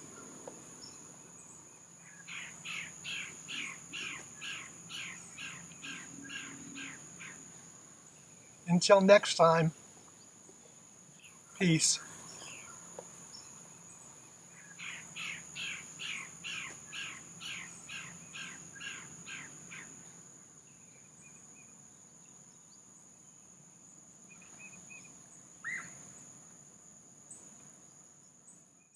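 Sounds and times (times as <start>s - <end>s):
high insect drone: 0.0s - 28.6s
bird calling quickly: 2.1s - 7.4s.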